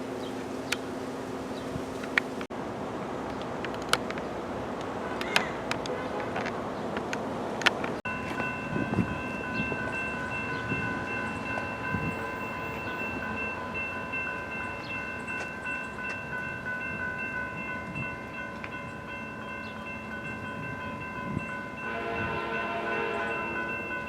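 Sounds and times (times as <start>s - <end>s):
loud multi-tone train sound: 0.0s - 24.0s
train high whine: 8.0s - 24.0s.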